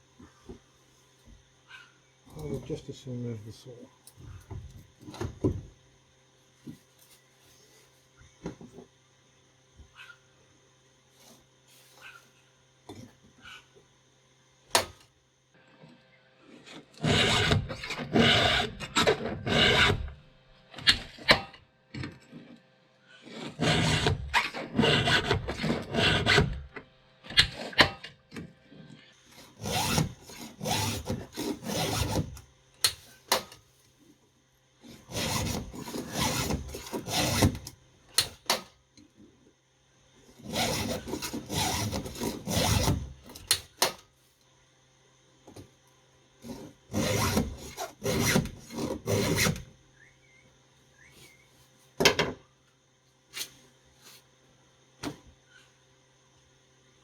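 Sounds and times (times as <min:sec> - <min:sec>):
file rasping on chainsaw chain: 0:17.0 - 0:20.0, 0:23.2 - 0:26.5, 0:29.3 - 0:32.4, 0:34.8 - 0:37.6, 0:40.4 - 0:43.0.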